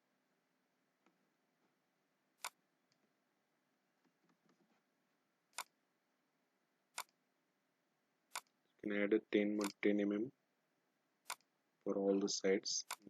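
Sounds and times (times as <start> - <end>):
computer mouse clicks: 2.4 - 3.0, 5.5 - 5.7, 7.0 - 7.2, 8.3 - 8.6, 9.6 - 9.8, 11.2 - 11.5.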